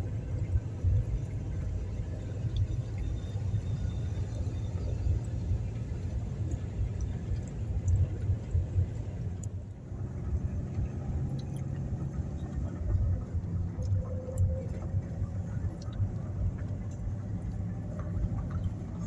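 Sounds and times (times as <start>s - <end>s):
faint ticks: 6.0s - 9.7s.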